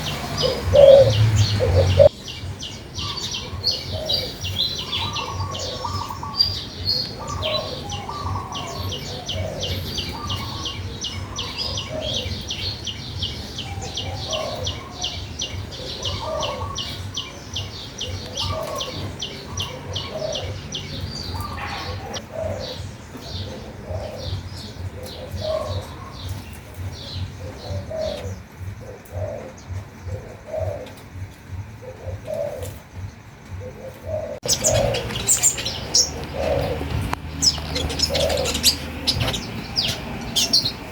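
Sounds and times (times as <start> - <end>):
doves cooing: 0.0 - 40.9
songbird chirping: 0.0 - 40.9
steady low hum: 19.0 - 40.9.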